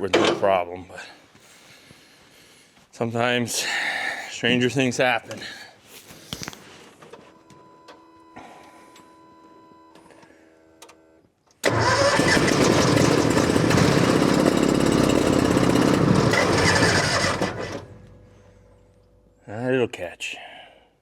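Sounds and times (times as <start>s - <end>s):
engine starter cranking: 11.6s - 18.7s.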